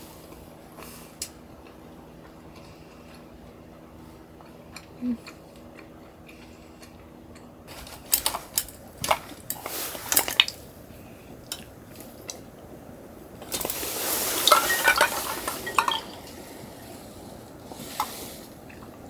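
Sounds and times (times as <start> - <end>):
utensils and dishes clattering: 7.7 - 10.4, 13.4 - 16.6.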